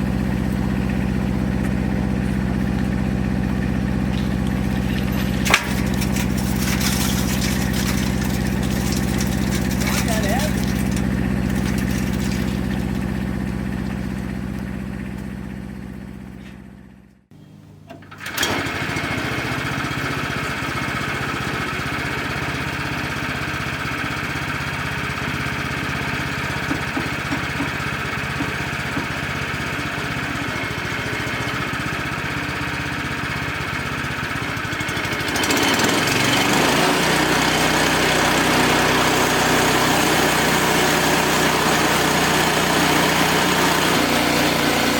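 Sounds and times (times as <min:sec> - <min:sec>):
sawmill gas engine running: 0:00.0 - 0:44.9.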